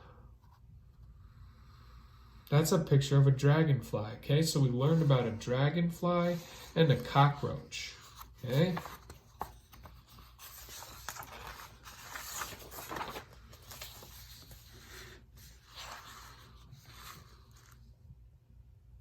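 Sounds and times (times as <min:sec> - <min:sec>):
rustling and scraping: 0:06.1 - 0:17.8.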